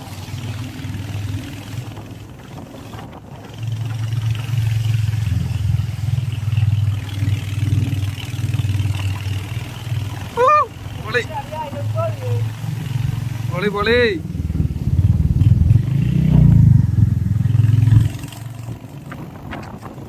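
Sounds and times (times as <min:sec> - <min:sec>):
motorcycle engine thumping: 0:06.6 - 0:20.0.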